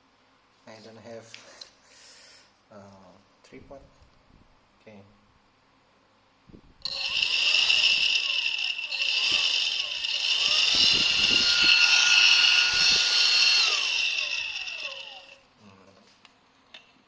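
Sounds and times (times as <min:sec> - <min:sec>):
electric ducted fan whining: 0:06.5 - 0:15.6.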